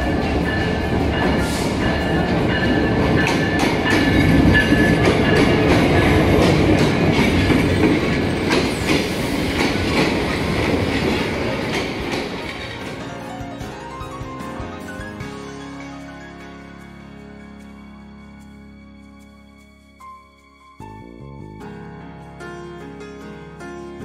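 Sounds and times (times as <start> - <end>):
wheels clattering over rail joints: 0.0 - 15.2
diesel train rolling past: 0.0 - 18.6.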